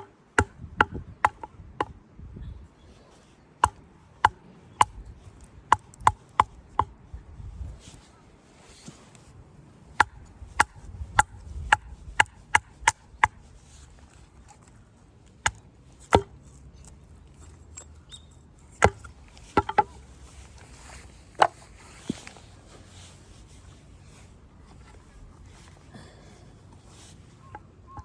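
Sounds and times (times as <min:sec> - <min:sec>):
axe chopping firewood: 0:00.0 - 0:02.0, 0:03.6 - 0:05.0, 0:05.6 - 0:07.0, 0:09.9 - 0:13.4, 0:15.4 - 0:16.4, 0:18.8 - 0:20.0, 0:21.3 - 0:22.3.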